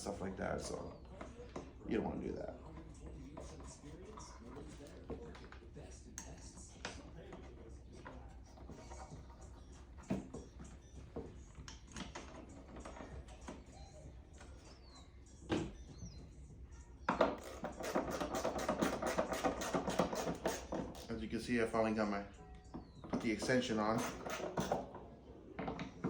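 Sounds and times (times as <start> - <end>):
background music with quick beat: 6.1 - 24.8.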